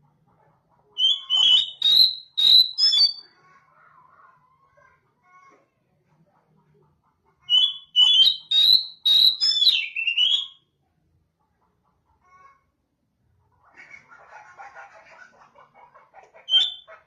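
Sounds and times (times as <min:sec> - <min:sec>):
bird singing whistled notes: 0:01.0 - 0:03.2, 0:07.5 - 0:10.6.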